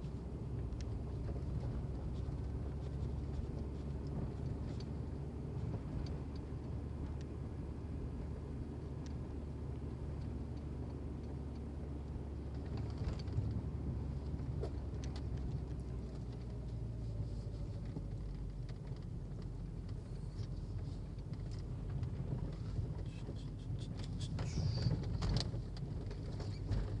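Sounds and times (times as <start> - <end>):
vehicle engine running: 0.0 - 27.0
short clicks and scrapes: 22.4 - 27.0.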